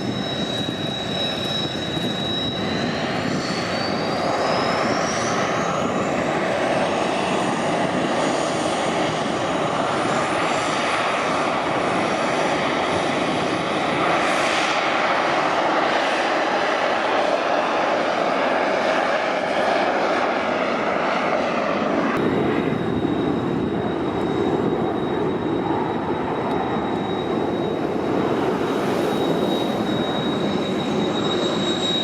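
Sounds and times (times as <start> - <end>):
jet engines spooling up: 0.0 - 32.0.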